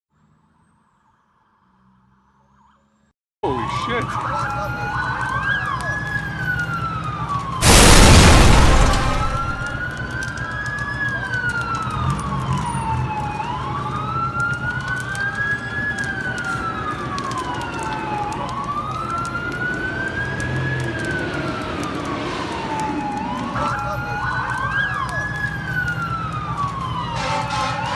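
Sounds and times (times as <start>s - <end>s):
emergency sirens wailing: 4.1s - 27.9s
loud rushing burst: 7.6s - 9.9s.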